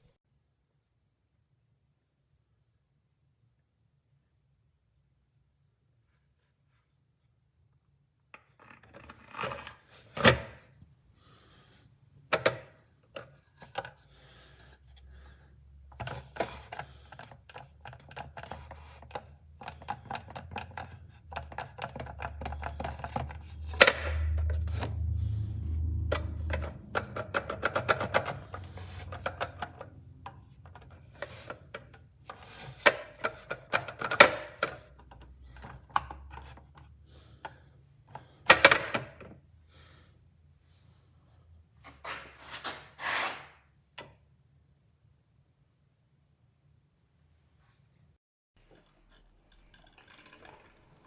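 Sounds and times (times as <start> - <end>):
objects being handled: 15.9 - 39.3, 41.8 - 43.6.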